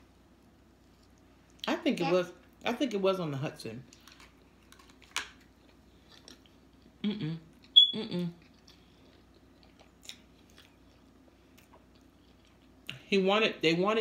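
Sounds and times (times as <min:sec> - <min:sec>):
chewing food: 0:03.9 - 0:13.0.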